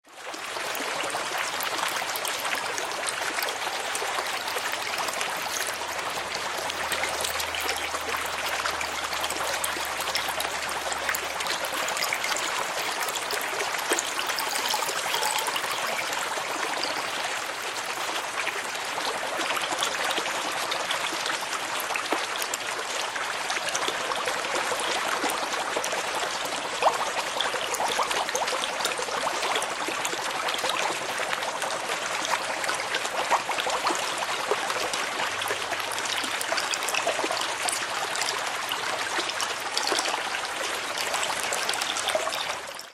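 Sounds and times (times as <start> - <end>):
water trickling and bubbling: 0.1 - 42.9
small water splashes: 0.2 - 42.9
small bubbles clicking: 1.4 - 17.7.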